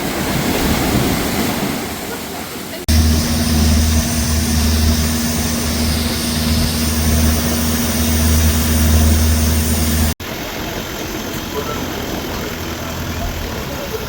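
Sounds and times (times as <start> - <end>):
engine droning: 2.9 - 14.0.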